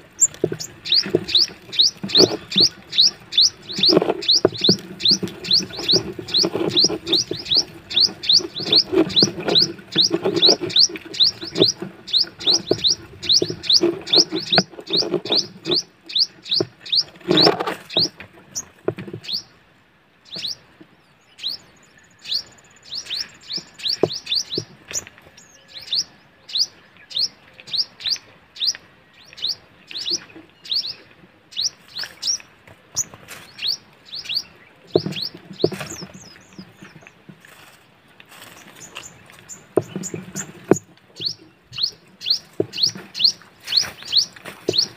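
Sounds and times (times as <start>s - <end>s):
low rustling thuds: 0.0s - 15.9s
small bird chirping: 0.0s - 19.5s, 20.2s - 37.8s, 38.4s - 44.9s.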